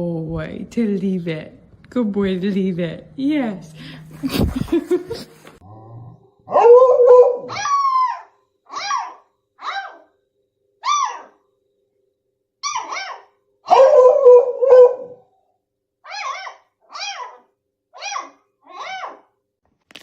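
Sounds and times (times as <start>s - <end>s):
dog barking: 6.5s - 10.1s, 12.6s - 15.2s.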